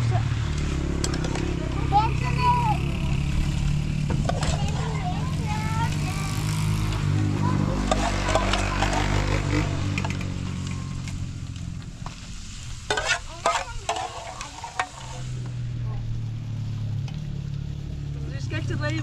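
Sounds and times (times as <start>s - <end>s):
spoon stirring in pots: 7.8s - 11.2s, 12.8s - 15.6s
food sizzling in a pan: 10.5s - 15.6s.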